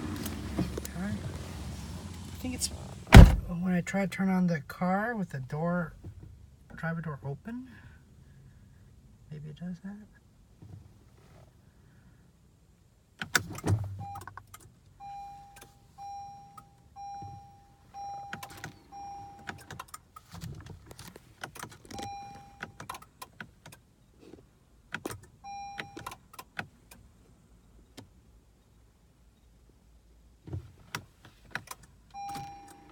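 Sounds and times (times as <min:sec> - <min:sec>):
car warning chime beeps: 0:13.9 - 0:14.4, 0:15.0 - 0:20.0, 0:21.9 - 0:23.1, 0:25.4 - 0:26.2, 0:32.1 - 0:32.9.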